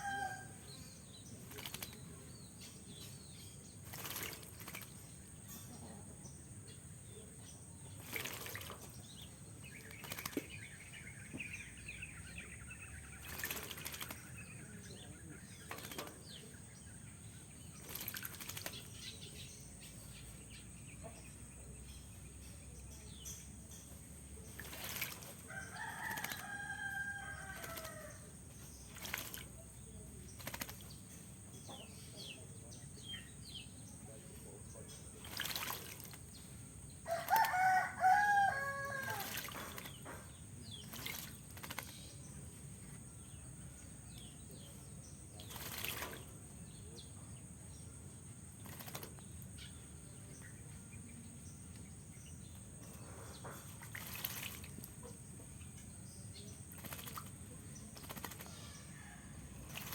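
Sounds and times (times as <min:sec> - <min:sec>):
bird splashing in water: 0:00.0 - 0:05.5, 0:07.8 - 0:11.5, 0:12.9 - 0:19.5, 0:23.9 - 0:31.6, 0:34.9 - 0:47.2, 0:48.2 - 0:49.8, 0:52.8 - 0:59.9.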